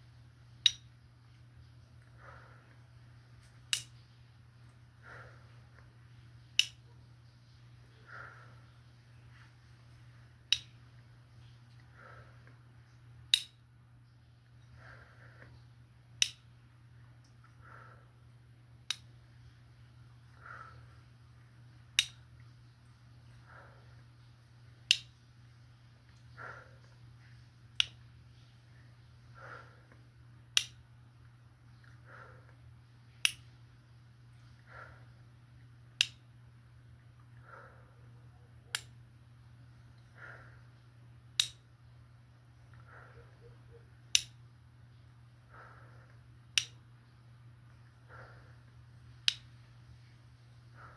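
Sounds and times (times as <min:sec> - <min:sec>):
faint low hum: 0:00.0 - 0:50.9
sharp snaps: 0:00.6 - 0:01.0, 0:02.0 - 0:05.9, 0:06.5 - 0:07.0, 0:10.4 - 0:11.1, 0:13.2 - 0:13.7, 0:16.1 - 0:16.6, 0:18.8 - 0:19.2, 0:21.8 - 0:22.5, 0:24.8 - 0:25.2, 0:26.1 - 0:33.7, 0:35.9 - 0:36.4, 0:38.7 - 0:39.0, 0:41.3 - 0:41.8, 0:42.7 - 0:44.5, 0:45.5 - 0:47.0, 0:47.7 - 0:49.8.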